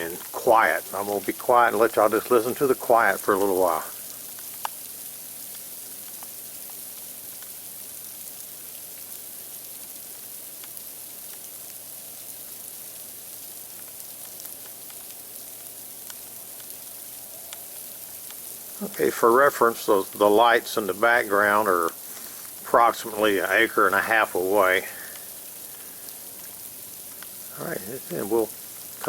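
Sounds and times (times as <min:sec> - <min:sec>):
ice pellets ticking: 0:00.0 - 0:29.0
sleet falling hiss: 0:16.0 - 0:29.0.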